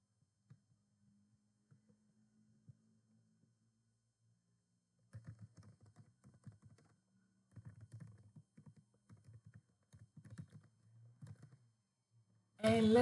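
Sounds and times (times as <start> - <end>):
faint keyboard typing: 5.1 - 11.7.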